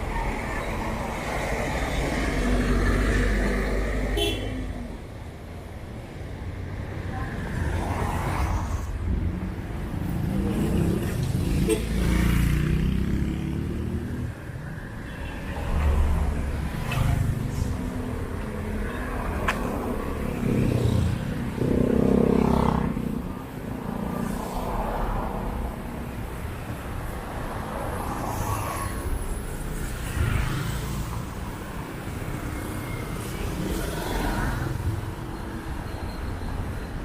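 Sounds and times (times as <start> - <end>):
road vehicles passing: 0.0 - 37.0.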